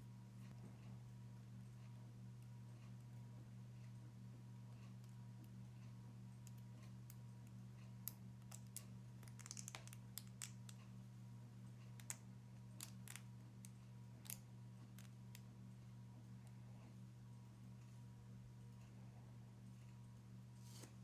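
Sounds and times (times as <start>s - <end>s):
faint steady hum: 0.0s - 21.0s
small parts clicking and tapping: 6.4s - 10.9s, 11.9s - 12.2s.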